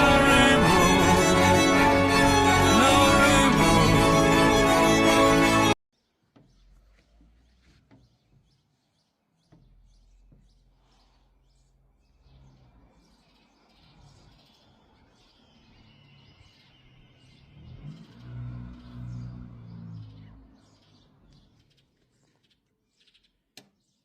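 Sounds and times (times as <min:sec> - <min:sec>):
loud pitched sound: 0:00.0 - 0:05.8
faint bird chirping: 0:06.0 - 0:24.0.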